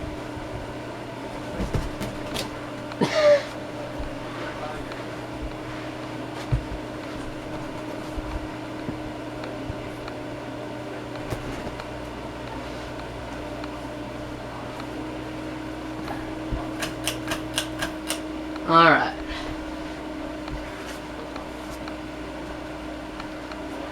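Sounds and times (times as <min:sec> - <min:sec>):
ceiling fan motor hum: 0:00.0 - 0:23.9
sharp clicks: 0:16.8 - 0:18.2.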